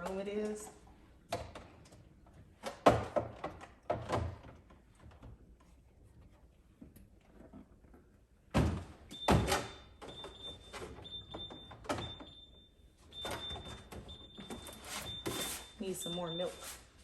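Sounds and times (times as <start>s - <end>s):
refrigerator alarm beeping: 9.1s - 17.0s.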